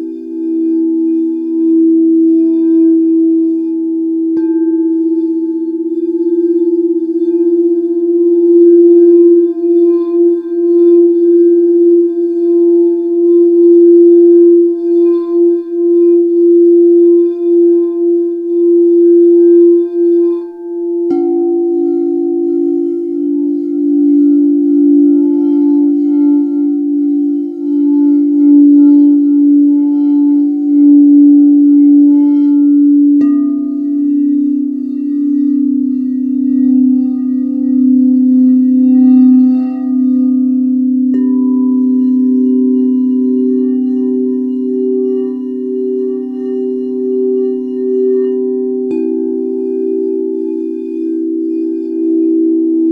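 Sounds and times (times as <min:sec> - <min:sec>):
lower-pitched bowl struck: 0:00.0 - 0:52.9
singing bowls ringing: 0:00.0 - 0:52.9.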